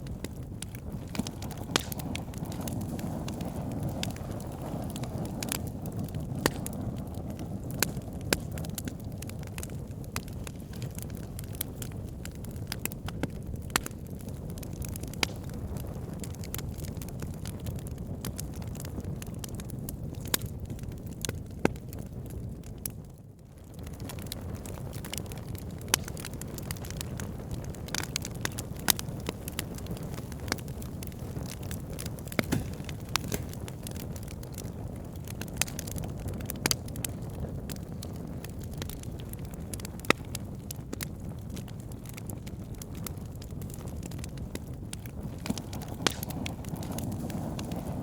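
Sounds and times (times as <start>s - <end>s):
fire low rumble: 0.0s - 48.0s
logs crackling and popping: 0.0s - 48.0s.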